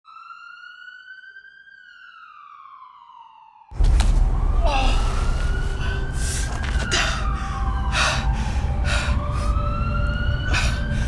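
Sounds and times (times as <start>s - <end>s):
siren wailing: 0.0s - 11.0s
heavy low rumble: 3.8s - 11.0s.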